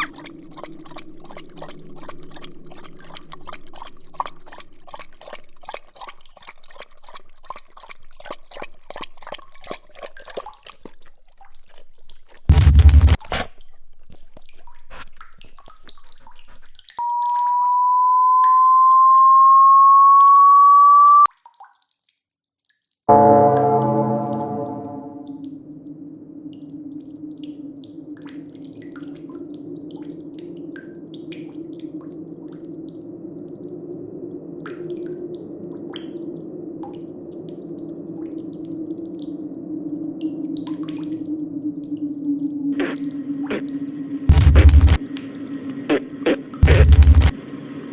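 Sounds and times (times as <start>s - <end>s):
water dripping: 0.0s - 12.5s
faint drips and ticks: 0.0s - 17.4s, 21.3s - 23.1s, 25.8s - 47.3s
burst of noise: 12.5s - 13.2s, 44.3s - 45.0s, 46.6s - 47.3s
rising electronic tone: 23.1s - 25.4s.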